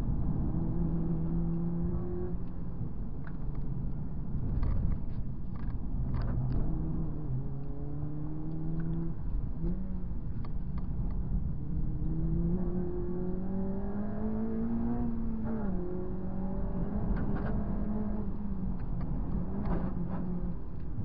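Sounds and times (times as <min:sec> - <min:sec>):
car engine revving: 0:00.1 - 0:02.5, 0:11.4 - 0:20.6.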